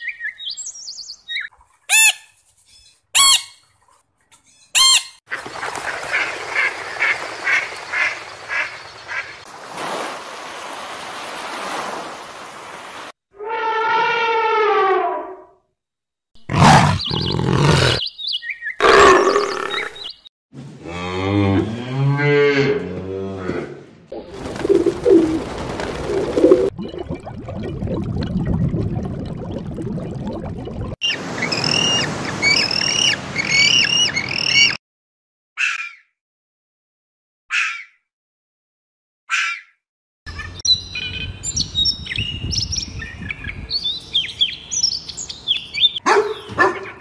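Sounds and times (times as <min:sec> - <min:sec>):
harsh animal cries: 0:16.5 - 0:18.0
low repeated animal calls: 0:16.5 - 0:18.0, 0:18.8 - 0:20.0.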